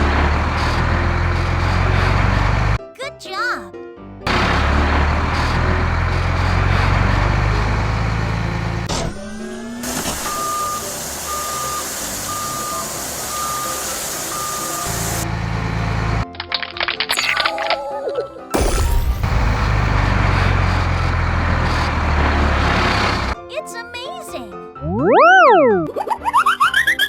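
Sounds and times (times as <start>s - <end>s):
cartoon truck engine: 0.0s - 2.8s, 4.3s - 16.3s, 18.6s - 23.4s, 24.8s - 27.0s
reversing alarm beeps: 10.1s - 15.0s, 24.8s - 25.9s
short rising tone: 24.8s - 25.9s.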